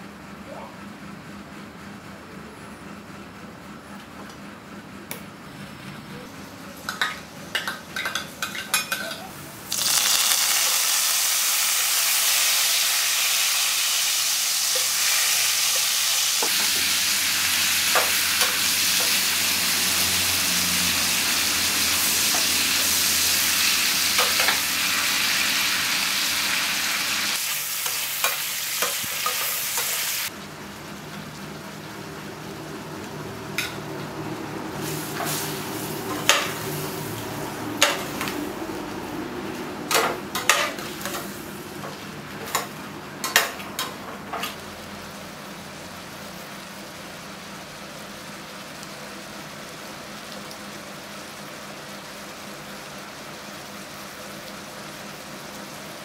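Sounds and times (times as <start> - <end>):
shrimp sizzling in hot oil: 8.4 - 30.4.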